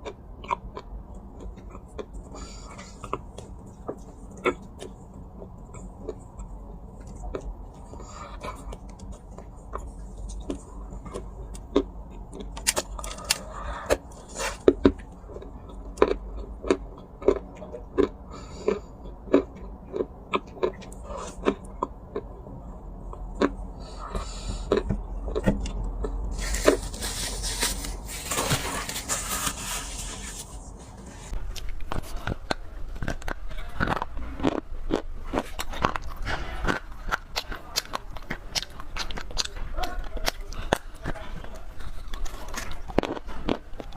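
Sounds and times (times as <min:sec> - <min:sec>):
dry clay cracking: 0:31.4 - 0:43.9.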